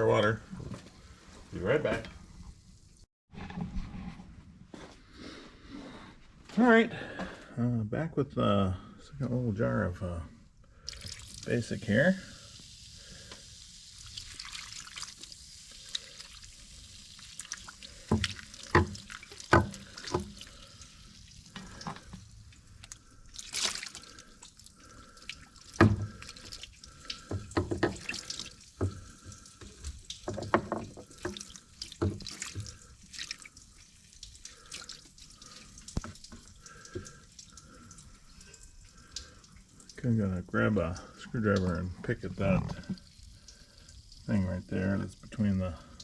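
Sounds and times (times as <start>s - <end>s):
water splashing and dripping: 10.7s - 46.0s
knocks and taps: 27.3s - 28.0s, 30.2s - 31.4s.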